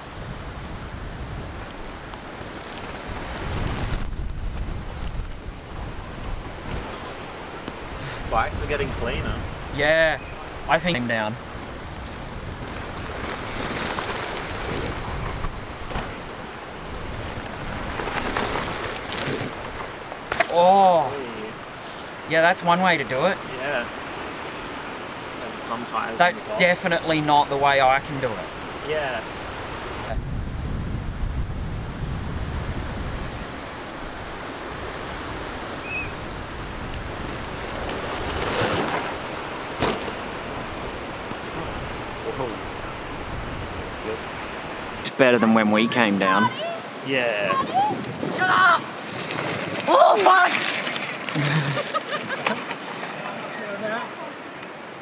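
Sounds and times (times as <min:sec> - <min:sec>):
wind buffeting microphone: 0:00.0 - 0:20.3, 0:27.4 - 0:45.1, 0:46.3 - 0:51.8.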